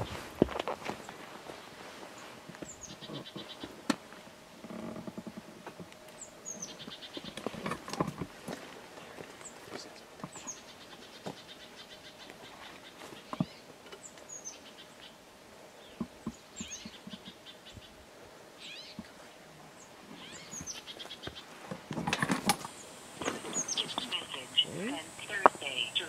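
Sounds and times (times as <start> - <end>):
footsteps on rock: 0.0 - 2.8
birds singing: 1.0 - 26.0.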